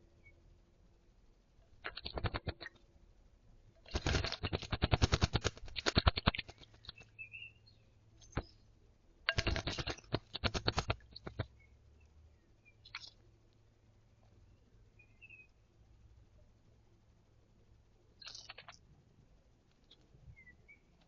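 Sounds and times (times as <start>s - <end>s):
short bird chirp: 6.5s - 8.6s, 12.6s - 13.2s
bird splashing in water: 9.3s - 11.4s.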